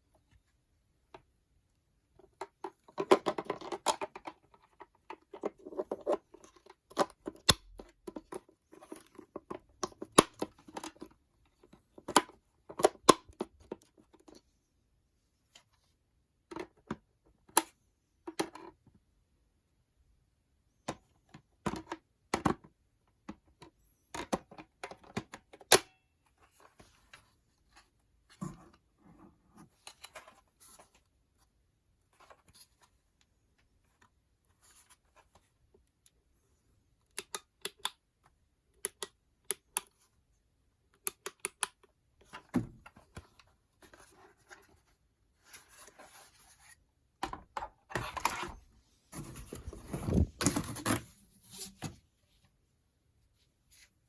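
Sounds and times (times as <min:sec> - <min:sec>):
plastic parts clicking and knocking: 0:02.2 - 0:14.3, 0:20.8 - 0:26.0.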